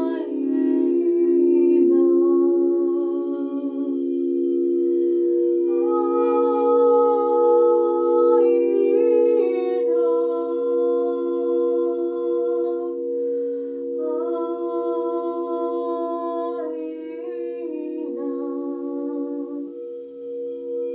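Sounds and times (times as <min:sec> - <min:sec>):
person humming held notes: 0:00.0 - 0:20.9
singing bowls ringing drone: 0:00.0 - 0:20.9.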